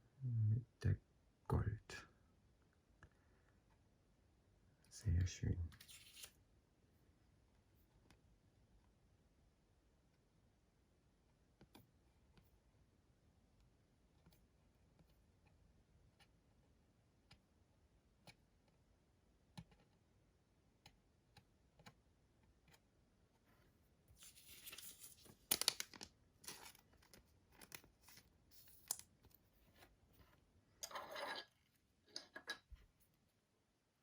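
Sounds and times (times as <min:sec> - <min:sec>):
plastic cards rustling: 0:05.8 - 0:06.3, 0:24.2 - 0:29.1.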